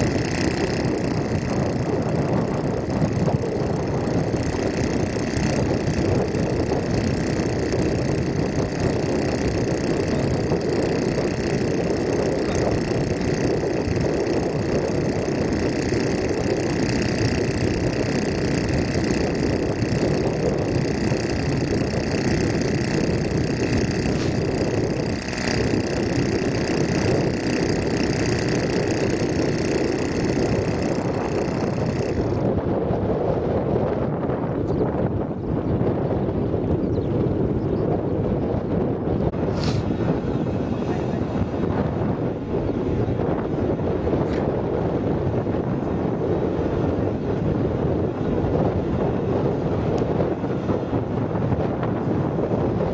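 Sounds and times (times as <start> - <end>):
engine running steadily: 0.0 - 52.9
wind on microphone: 0.0 - 52.9.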